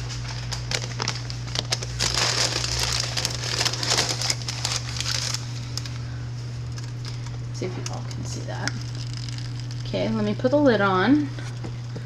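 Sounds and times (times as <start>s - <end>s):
paper crinkling and rustling: 0.0s - 6.0s, 6.7s - 9.8s
steady low hum: 0.0s - 12.0s.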